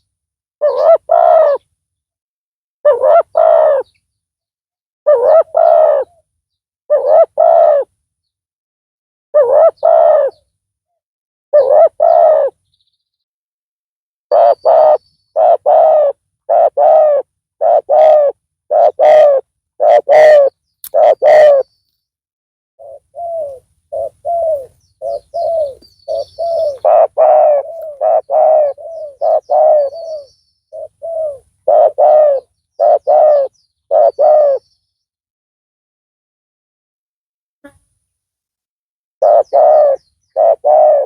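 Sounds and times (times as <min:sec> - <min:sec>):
dove cooing: 0:00.6 - 0:01.7, 0:02.8 - 0:03.9, 0:05.1 - 0:06.2, 0:06.9 - 0:07.9, 0:09.4 - 0:10.4, 0:11.6 - 0:12.6, 0:14.3 - 0:21.7, 0:22.8 - 0:34.6, 0:39.2 - 0:41.0.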